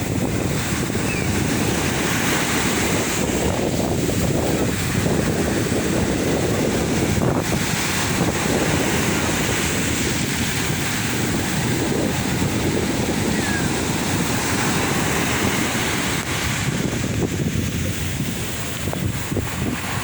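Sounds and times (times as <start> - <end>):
sea waves washing ashore: 0.0 - 20.0
wind buffeting microphone: 0.0 - 20.0.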